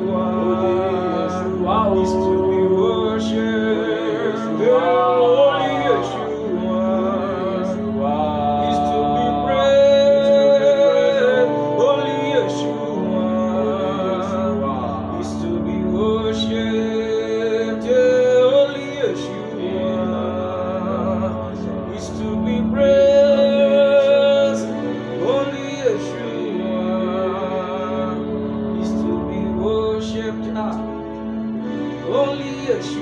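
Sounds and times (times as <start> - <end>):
person singing long sliding notes: 0.0 - 33.0
sustained chord: 0.0 - 33.0.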